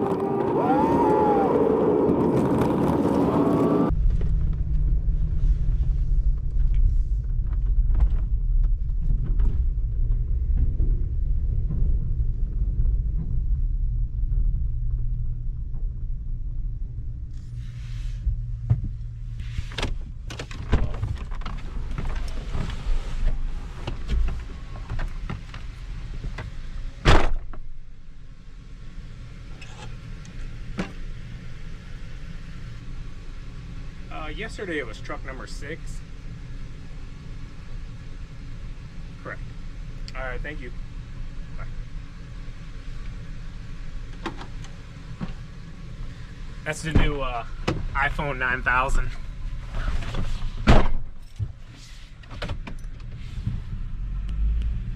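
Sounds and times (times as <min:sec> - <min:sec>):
truck engine low rumble: 0:00.0 - 0:54.9.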